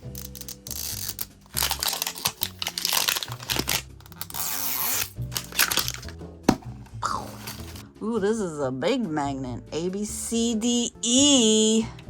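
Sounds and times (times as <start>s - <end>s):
plastic wrapping tearing and crinkling: 0.0s - 6.2s
background music: 0.0s - 12.0s.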